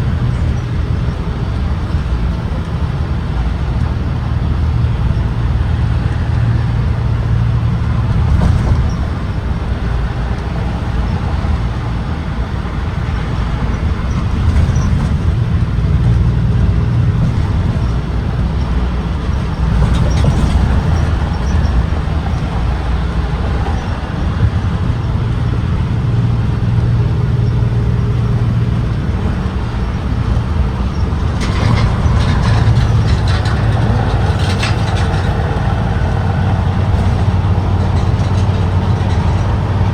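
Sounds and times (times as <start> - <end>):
bus engine and road rumble: 0.0 - 39.9
hissing and rattling: 30.8 - 39.9.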